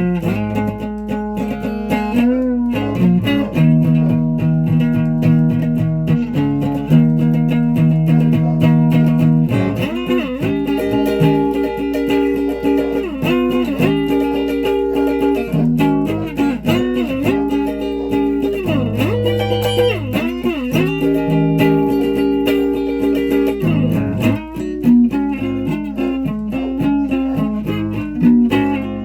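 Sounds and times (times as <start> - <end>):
guitar notes with sliding bends: 0.0 - 29.0.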